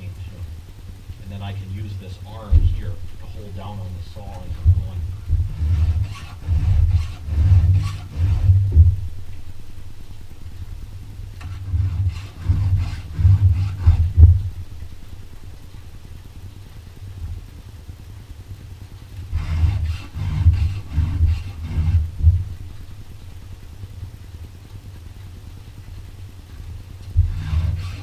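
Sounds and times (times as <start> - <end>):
low thump from saw: 2.5 - 3.0, 4.6 - 9.0, 11.4 - 14.4, 27.2 - 28.0
file stroking chainsaw chain: 5.6 - 8.5, 11.4 - 14.1, 19.4 - 22.0, 27.2 - 28.0.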